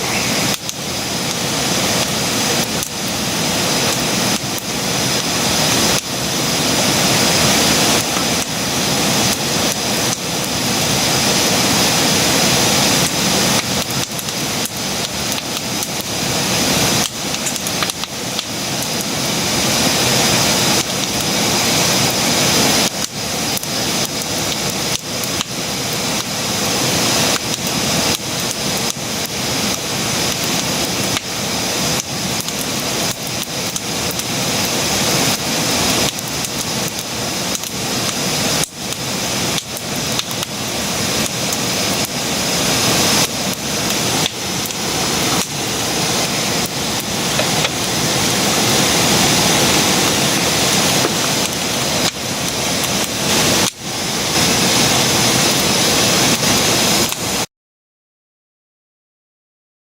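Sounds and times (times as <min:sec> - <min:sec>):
campfire hissing: 0:00.0 - 0:57.5
fire crackling and popping: 0:00.0 - 0:57.5.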